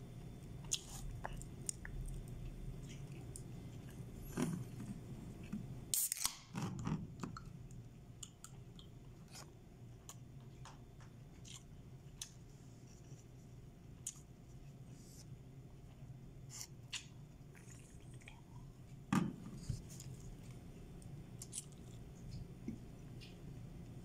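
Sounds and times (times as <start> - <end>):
chewing with mouth clicks: 0.4 - 4.8, 11.4 - 12.4, 16.9 - 18.8.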